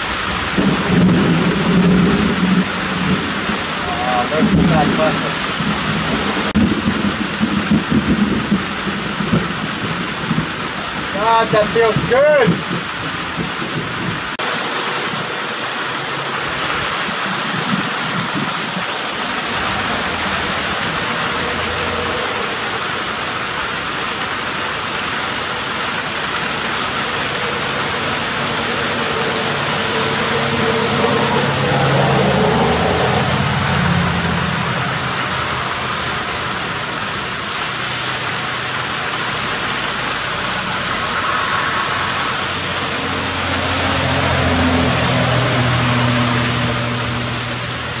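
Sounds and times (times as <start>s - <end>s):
heavy rain falling: 0.0s - 48.0s
low droning sound: 18.2s - 48.0s.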